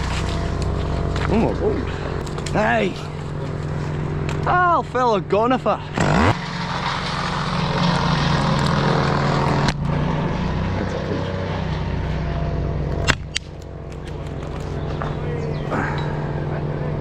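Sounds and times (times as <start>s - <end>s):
chainsaw idling: 0.0s - 4.8s, 5.8s - 9.7s
chainsaw cutting wood: 5.9s - 10.4s.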